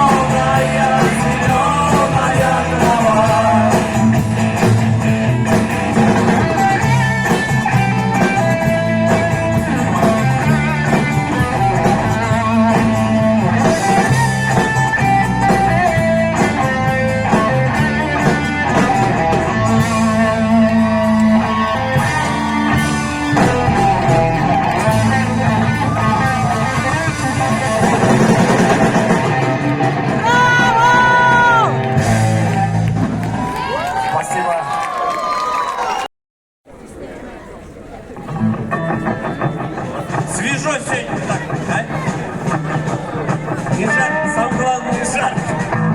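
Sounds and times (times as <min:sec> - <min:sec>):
melodic guitar line: 0:00.0 - 0:32.9, 0:38.2 - 0:45.9
live rock band: 0:00.0 - 0:33.7.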